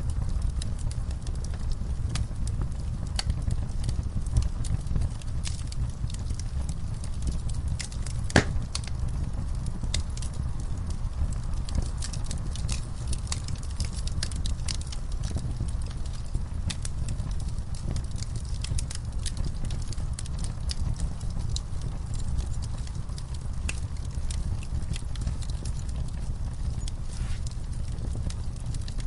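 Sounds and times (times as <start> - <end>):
low rumble of flames: 0.0 - 29.0
wood fire crackling: 0.0 - 29.0
loud fire pop: 8.3 - 8.8.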